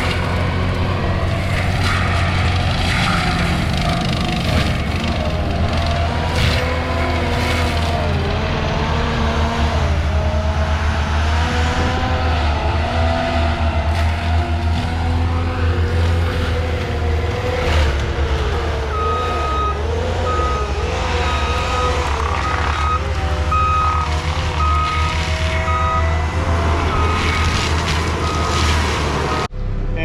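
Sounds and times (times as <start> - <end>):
diesel engine running: 0.0 - 30.0
reversing alarm beeping: 18.9 - 26.2, 26.8 - 27.5, 28.2 - 29.5.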